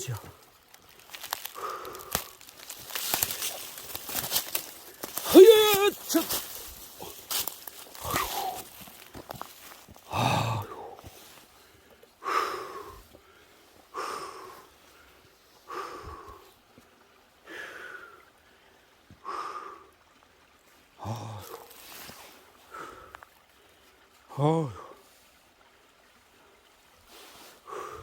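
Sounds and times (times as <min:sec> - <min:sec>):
person breathing hard: 0:01.5 - 0:03.3, 0:06.9 - 0:08.9, 0:10.0 - 0:16.5, 0:27.6 - 0:28.0.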